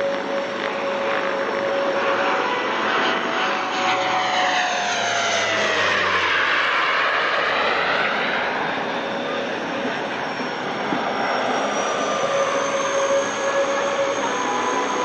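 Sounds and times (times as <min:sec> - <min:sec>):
turboprop aircraft flying past: 0:00.0 - 0:15.0.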